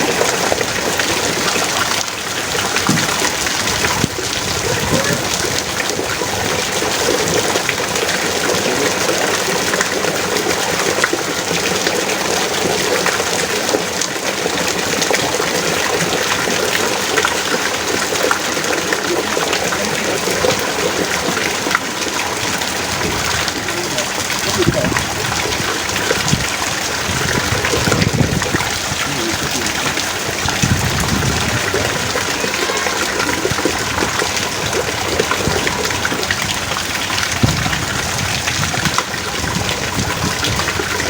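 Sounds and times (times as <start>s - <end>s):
heavy rain pouring: 0.0s - 41.0s.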